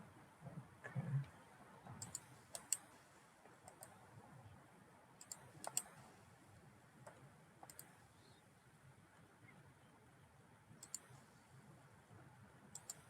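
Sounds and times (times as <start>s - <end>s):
computer mouse clicks: 2.0s - 2.9s, 3.6s - 4.0s, 5.2s - 6.0s, 7.0s - 8.0s, 10.8s - 11.1s, 12.7s - 13.0s.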